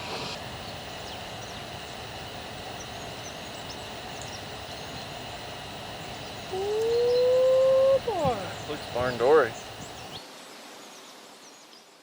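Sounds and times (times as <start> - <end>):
birds chirping: 0.0 - 10.2
low rush of background noise: 0.0 - 10.7
loud drawn-out voice: 6.5 - 9.5.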